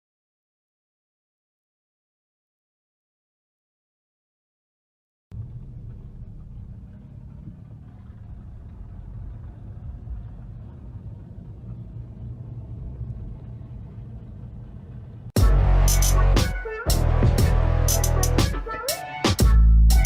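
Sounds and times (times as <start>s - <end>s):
car engine and road rumble: 5.3s - 18.8s.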